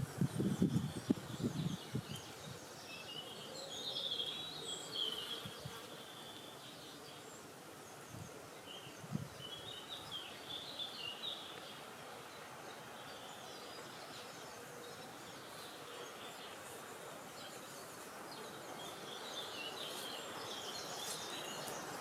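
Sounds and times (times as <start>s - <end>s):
wind rumble on microphone: 0.0s - 2.6s, 9.0s - 9.5s
small birds chirping: 0.0s - 22.0s
wind hiss: 0.0s - 22.0s.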